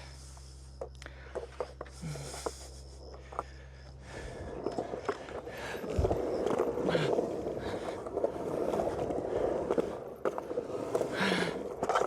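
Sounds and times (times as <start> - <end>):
skateboard wheels rolling: 4.0 - 12.0
skateboard clicks and knocks: 4.4 - 12.0.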